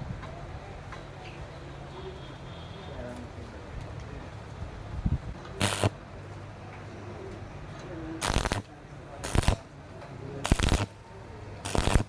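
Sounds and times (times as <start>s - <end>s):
welding arc crackling: 5.6s - 6.0s, 8.2s - 9.7s, 10.4s - 11.0s, 11.6s - 12.0s.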